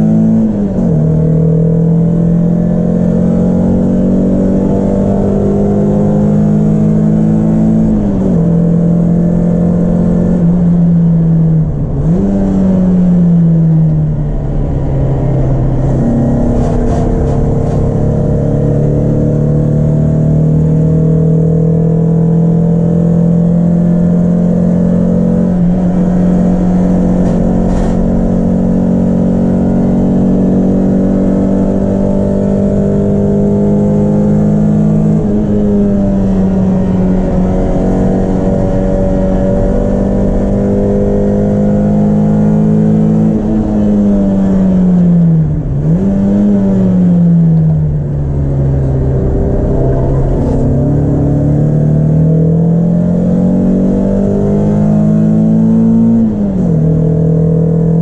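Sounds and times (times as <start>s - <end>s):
car engine revving high: 0.0s - 58.0s.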